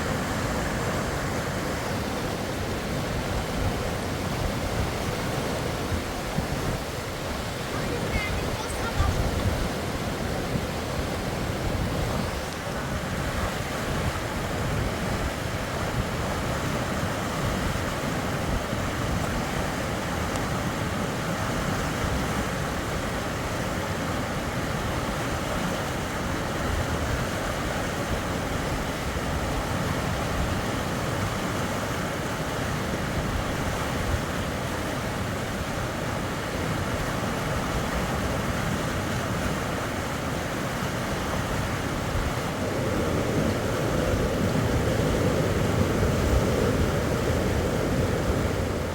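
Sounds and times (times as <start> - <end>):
fast-flowing river water: 0.0 - 48.9.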